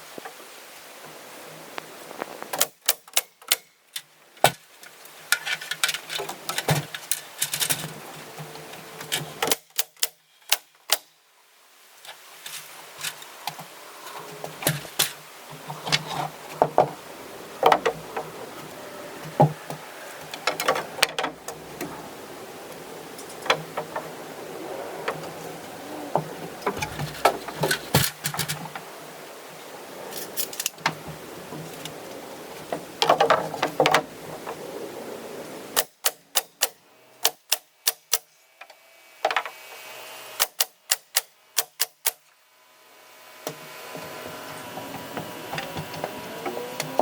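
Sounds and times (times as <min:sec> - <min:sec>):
faint steady hum: 0:12.9 - 0:35.8.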